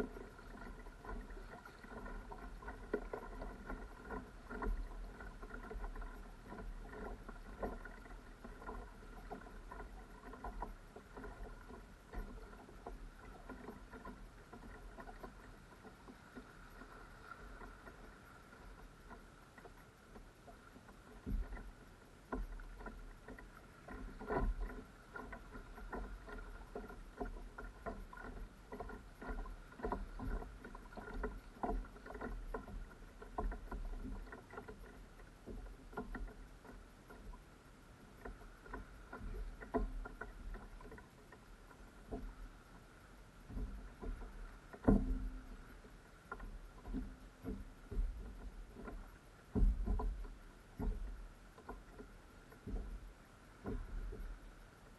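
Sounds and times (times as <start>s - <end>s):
paddle knocking on kayak: 0.0s - 54.9s
paddle splashing water: 0.0s - 54.9s.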